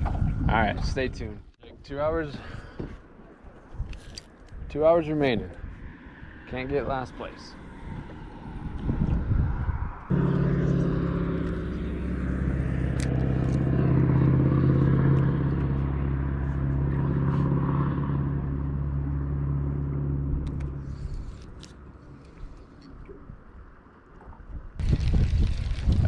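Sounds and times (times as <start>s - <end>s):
outboard motor running: 10.1s - 22.5s.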